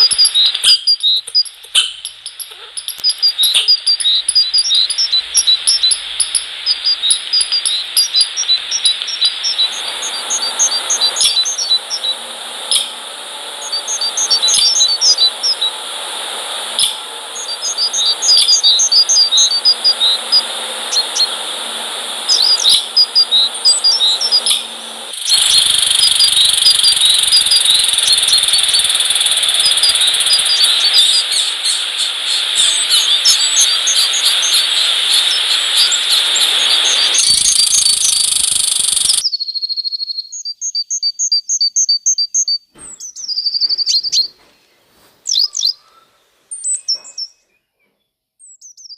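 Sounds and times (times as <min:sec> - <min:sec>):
high-pitched insect trill: 0:00.0 - 0:12.9, 0:22.3 - 0:39.2
small birds chirping: 0:00.0 - 0:48.9.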